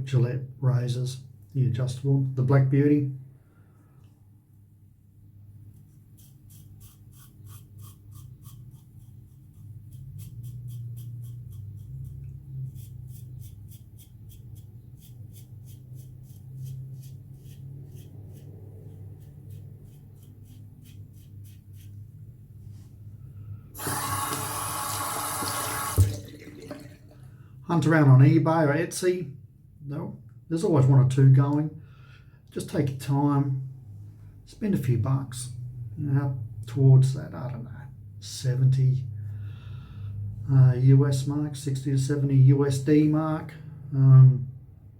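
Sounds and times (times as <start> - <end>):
safety razor scraping stubble: 5.9 - 22.0
water tap running: 23.8 - 27.2.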